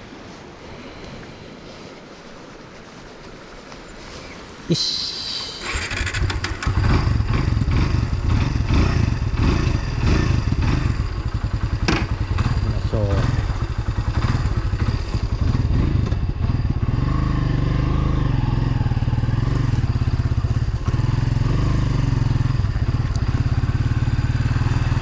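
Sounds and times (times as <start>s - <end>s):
motorcycle engine idling: 5.6s - 25.0s.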